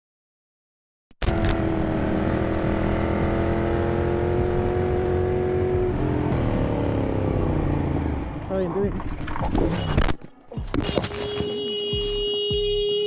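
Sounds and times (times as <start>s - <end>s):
road and wind noise: 1.2s - 13.0s
motorcycle engine running: 1.6s - 9.7s.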